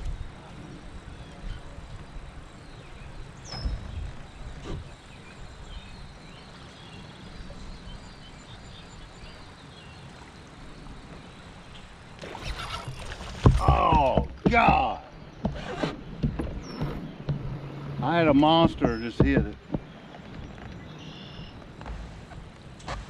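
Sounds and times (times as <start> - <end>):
moving water: 0.0 - 23.0
wind rumble: 0.0 - 23.0
soft knocks on kayak: 12.9 - 17.6, 18.5 - 20.8.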